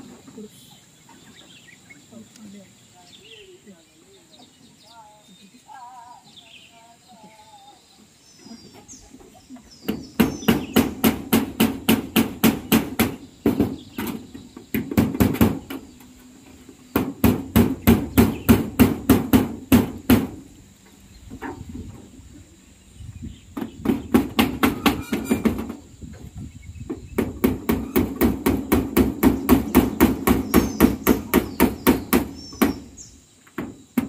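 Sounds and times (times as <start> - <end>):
hammer on metal roofing: 9.9 - 15.9, 16.9 - 20.5, 23.6 - 25.8, 27.1 - 33.0.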